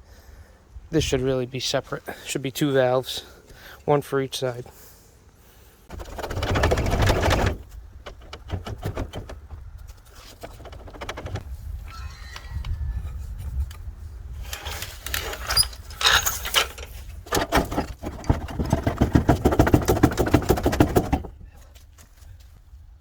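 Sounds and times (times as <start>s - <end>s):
tool rattling on bolts: 5.9s - 11.4s, 15.2s - 21.4s.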